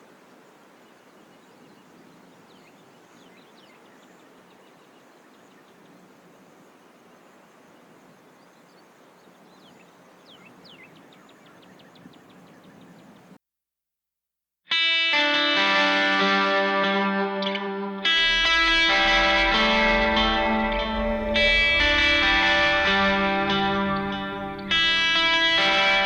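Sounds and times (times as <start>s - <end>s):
steady background hiss: 0.0s - 13.3s
birds chirping: 0.0s - 13.4s, 18.1s - 26.0s
fast ticking notes: 18.1s - 26.0s.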